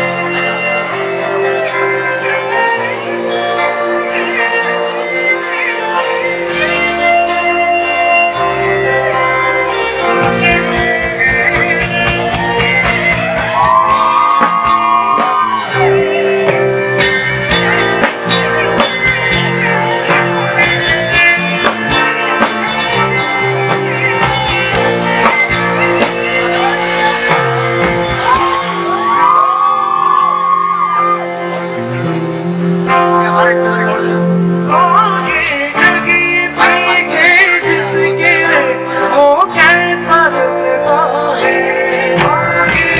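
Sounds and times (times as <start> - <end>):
bass guitar: 0.0 - 42.9
bending lead melody: 0.0 - 42.9
guitars: 0.0 - 42.9
drum kit: 2.5 - 42.9.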